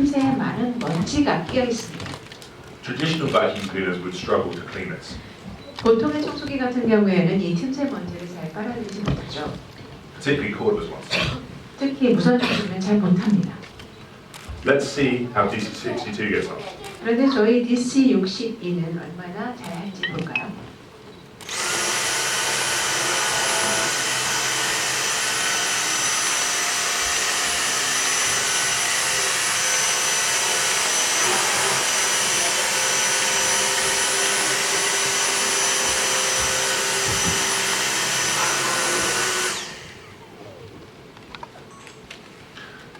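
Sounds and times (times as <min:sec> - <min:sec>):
cordless vacuum whining: 0:21.4 - 0:40.7.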